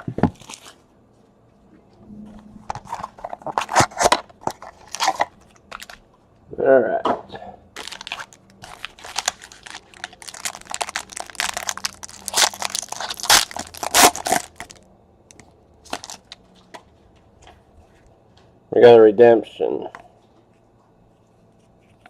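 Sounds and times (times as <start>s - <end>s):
plastic wrapping crinkling and tearing: 0.0s - 0.8s, 2.7s - 6.0s, 7.8s - 16.4s.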